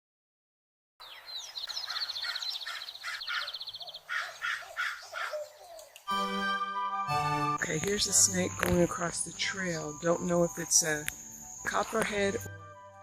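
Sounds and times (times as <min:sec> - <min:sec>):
harsh cawing bird calls: 0:01.0 - 0:06.0
fast high bird trill: 0:01.4 - 0:05.7.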